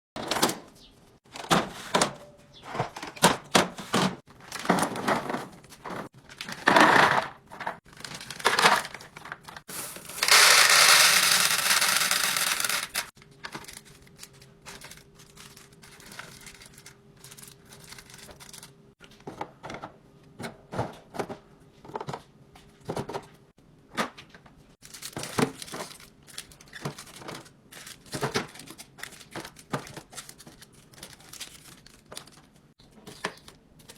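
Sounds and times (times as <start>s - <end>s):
items knocking and clicking: 0.2s - 13.8s, 18.0s - 26.0s, 26.7s - 31.2s
packaging crinkling and tearing: 7.9s - 18.8s, 24.8s - 32.7s.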